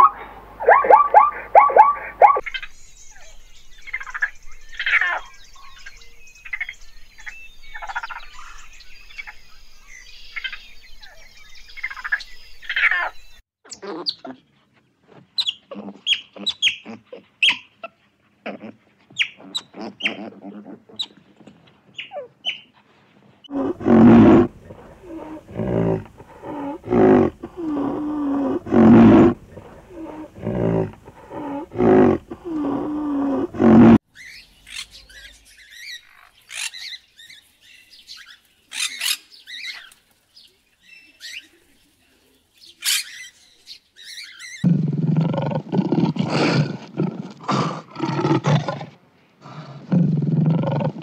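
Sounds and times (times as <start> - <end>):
loud pitched animal calls: 0.0 - 2.4.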